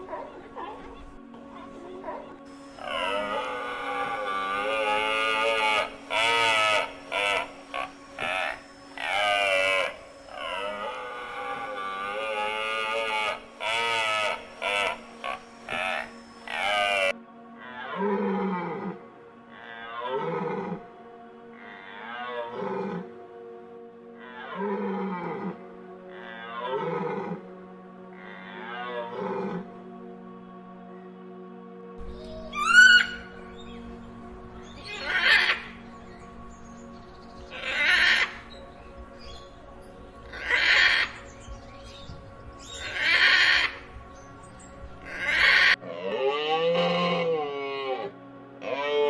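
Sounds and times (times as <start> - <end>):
animal calling: 0.0 - 20.8, 32.0 - 43.9, 45.0 - 49.0
background music: 0.0 - 49.0
horse calling: 34.7 - 36.4, 37.5 - 38.5, 40.2 - 41.4, 42.7 - 43.9, 45.0 - 45.8.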